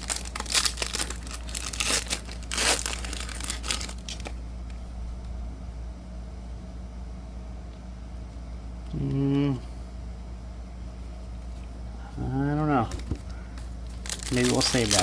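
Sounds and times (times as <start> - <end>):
foil wrapper tearing and crinkling: 0.0 - 4.4, 13.8 - 15.0
low steady hum: 0.0 - 15.0.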